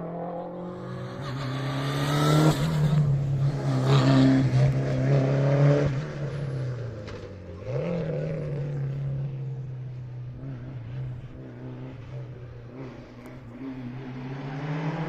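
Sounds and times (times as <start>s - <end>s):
rally car engine at full throttle: 0.0s - 15.0s.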